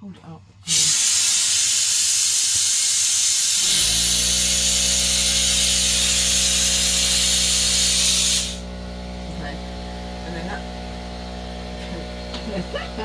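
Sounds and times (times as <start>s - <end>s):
compressed air hissing through hose: 0.6s - 8.7s
compressor motor humming: 0.6s - 13.0s.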